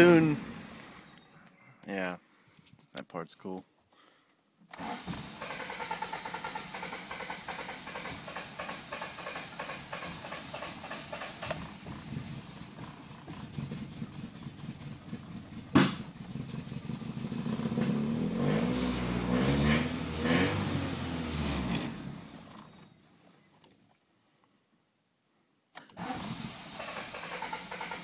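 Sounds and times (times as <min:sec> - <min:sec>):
car engine running roughly: 0:04.8 - 0:22.6, 0:26.0 - 0:28.0
loud engine pop: 0:04.8 - 0:22.6.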